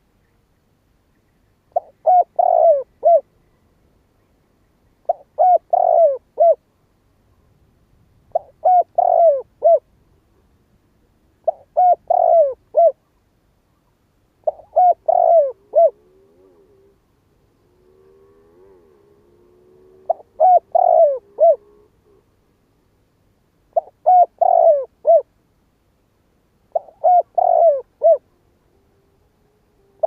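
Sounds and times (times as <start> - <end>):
dove cooing: 1.7 - 3.3, 5.0 - 6.6, 8.3 - 9.9, 11.4 - 13.1, 14.4 - 22.4, 23.7 - 25.3, 26.7 - 30.0.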